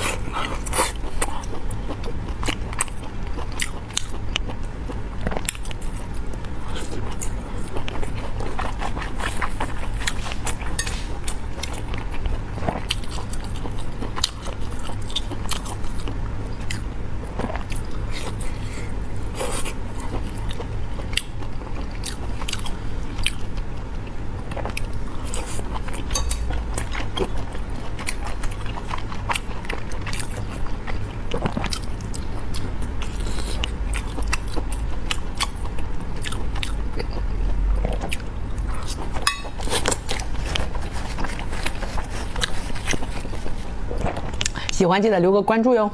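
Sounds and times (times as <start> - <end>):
woman chewing food: 0.0 - 44.7
steady low hum: 0.0 - 45.9.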